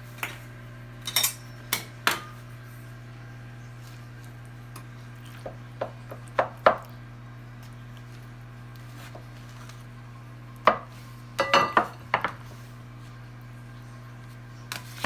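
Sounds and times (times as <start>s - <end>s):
metal utensils clinking on dish: 1.0s - 2.4s, 11.4s - 12.0s.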